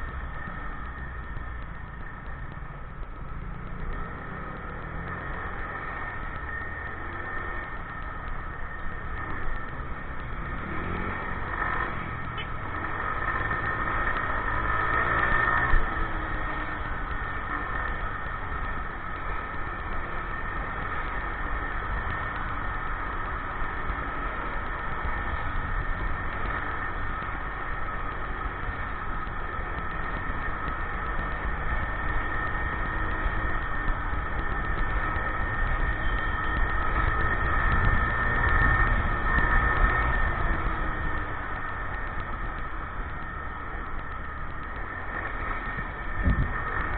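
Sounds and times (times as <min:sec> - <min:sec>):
motorcycle engine: 0:00.0 - 0:46.9
wind noise: 0:44.0 - 0:46.9.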